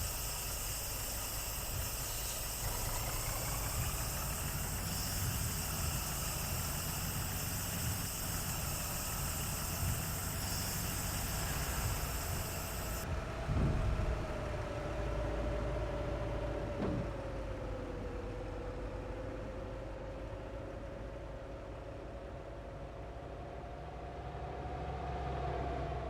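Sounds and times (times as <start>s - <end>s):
faint rising whine: 0.0s - 16.4s
road hiss: 0.0s - 20.4s
truck engine rumble: 0.0s - 26.0s.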